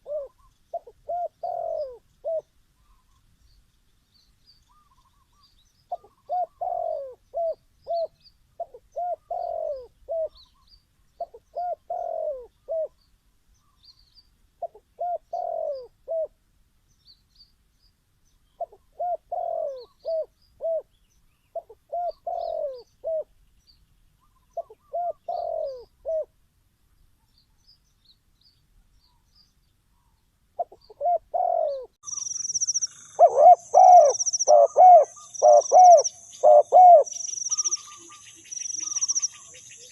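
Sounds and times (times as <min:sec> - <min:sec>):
dove cooing: 0:00.0 - 0:03.1, 0:04.7 - 0:10.6, 0:11.2 - 0:13.0, 0:14.6 - 0:16.4, 0:18.6 - 0:23.3, 0:24.2 - 0:26.3, 0:30.6 - 0:39.9.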